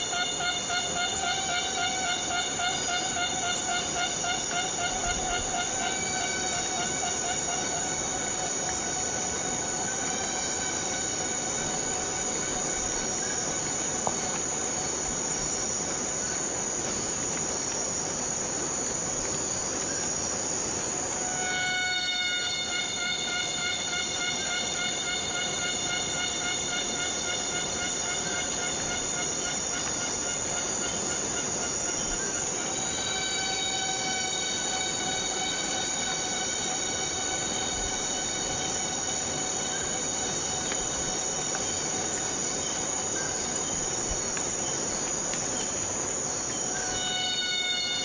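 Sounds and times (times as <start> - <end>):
insect drone: 0.0 - 48.0
steady rain hiss: 0.0 - 48.0.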